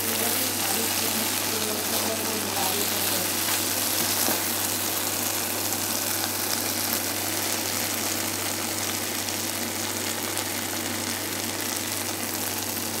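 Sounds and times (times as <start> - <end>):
constant low hum: 0.0 - 12.8
meat sizzling in a wok: 0.0 - 13.0.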